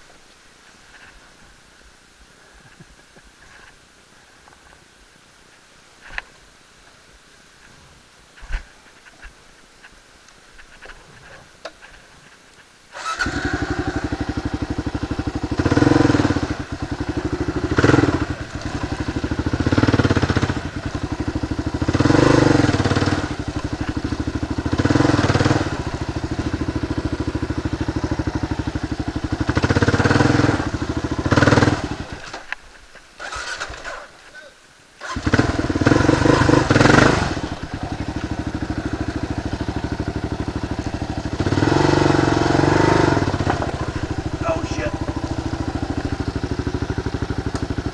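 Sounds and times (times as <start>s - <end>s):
motorcycle engine starting: 12.9s - 32.6s, 33.2s - 34.2s, 35.0s - 47.9s
motorcycle engine idling: 13.0s - 32.2s, 35.0s - 47.9s.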